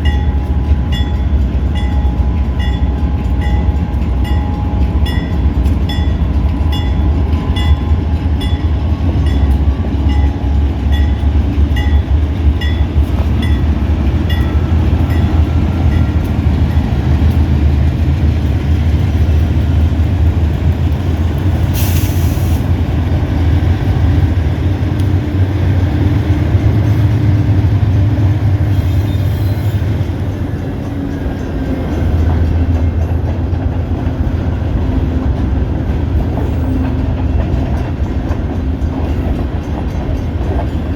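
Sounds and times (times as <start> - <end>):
freight train rumbling: 0.0 - 40.9
short hiss: 21.8 - 22.6.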